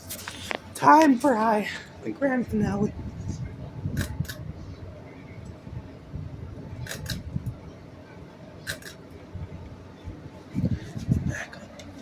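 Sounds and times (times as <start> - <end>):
low rumble: 2.4 - 11.4.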